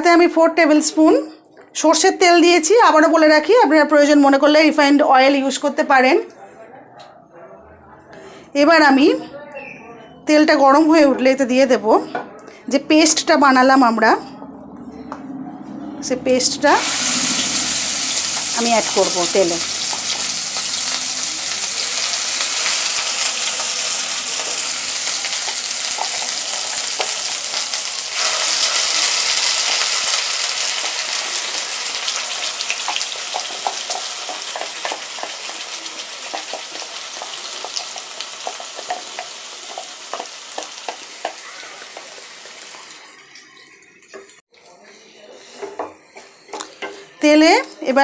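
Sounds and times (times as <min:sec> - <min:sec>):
paste sizzling in hot oil: 0:16.8 - 0:44.4.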